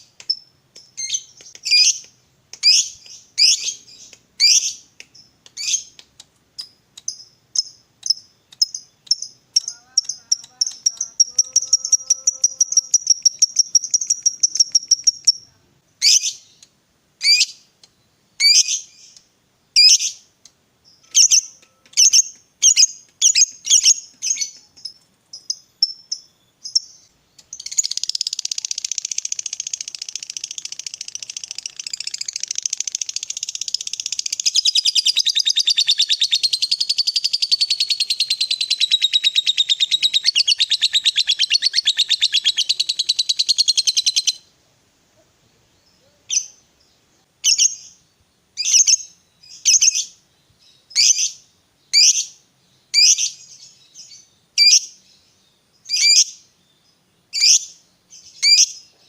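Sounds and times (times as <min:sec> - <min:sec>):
lovebird trilling and chattering: 0:00.2 - 0:16.6, 0:21.0 - 0:44.4.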